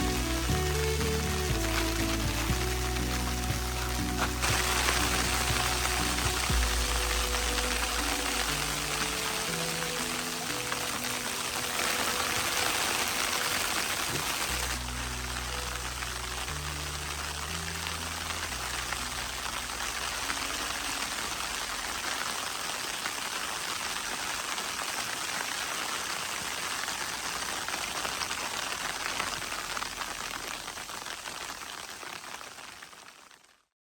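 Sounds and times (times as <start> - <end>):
low music notes: 0.0 - 22.0
crackling fire hiss: 0.0 - 33.6.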